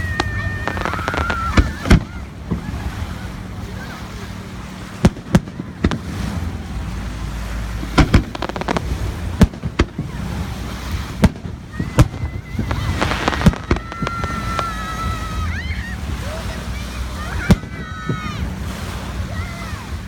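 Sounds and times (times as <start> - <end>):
firework shells bursting: 0.0 - 2.1, 8.0 - 10.0, 11.2 - 14.8
high whistling fireworks: 0.0 - 3.5, 5.0 - 6.5, 7.6 - 16.0, 17.2 - 18.4
firework crackling: 0.0 - 3.6, 4.7 - 15.6.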